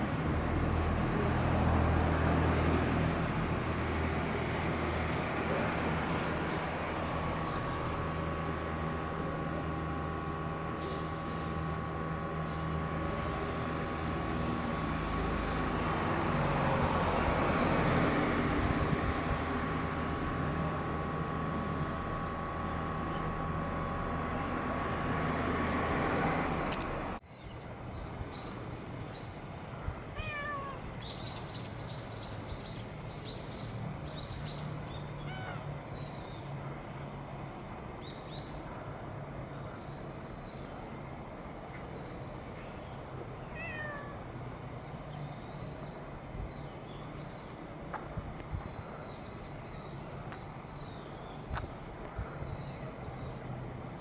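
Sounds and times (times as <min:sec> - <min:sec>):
mechanical hum with faint whine: 0:05.1 - 0:15.9, 0:18.4 - 0:54.0
cat meowing: 0:30.2 - 0:30.9, 0:35.2 - 0:35.7, 0:43.4 - 0:44.3.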